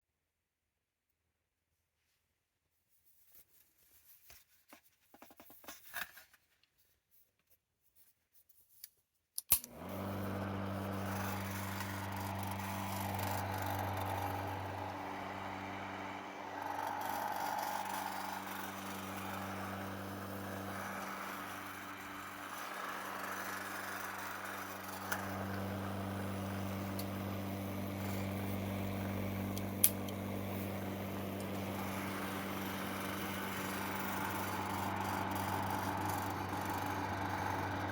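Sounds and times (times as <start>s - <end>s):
faint handling sounds: 1.8s - 9.5s
hair dryer switch click: 9.4s - 9.9s, 29.1s - 30.3s
hair dryer motor hum and air: 9.6s - 37.9s.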